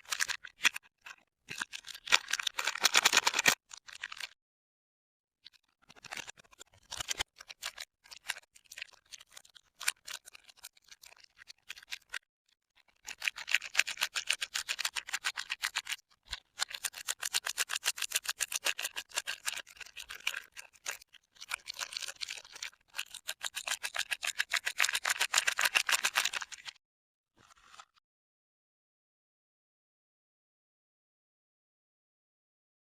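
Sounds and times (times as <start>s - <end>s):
wrapper crinkling: 1.5s - 4.3s.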